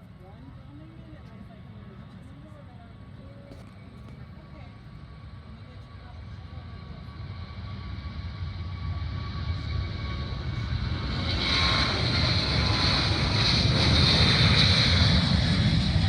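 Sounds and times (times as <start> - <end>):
airplane engines: 0.0 - 16.0.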